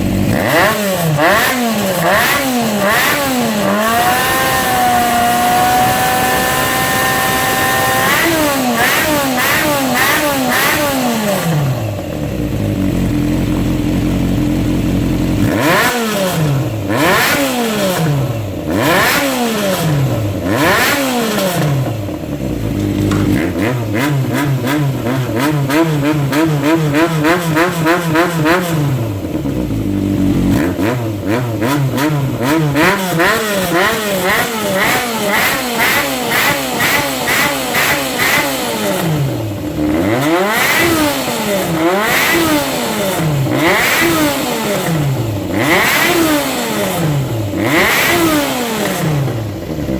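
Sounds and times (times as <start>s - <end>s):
motorcycle engine idling and revving: 0.0s - 49.9s.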